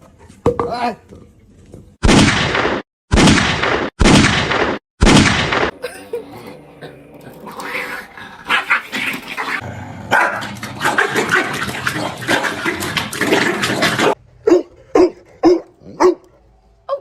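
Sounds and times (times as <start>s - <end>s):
dog barking: 10.1s - 11.1s, 14.4s - 17.0s.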